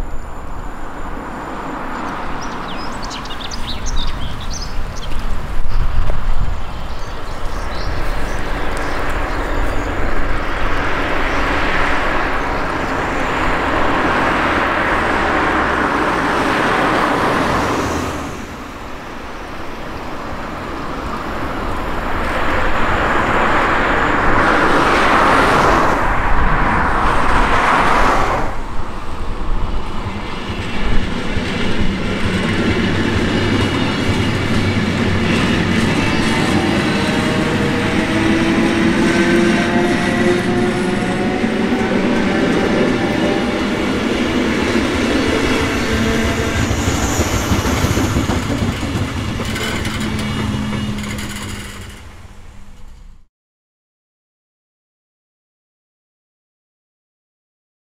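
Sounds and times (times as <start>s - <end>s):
wheel-on-rail rush: 0.0s - 53.2s
train wheels clickety-clack: 29.8s - 52.2s.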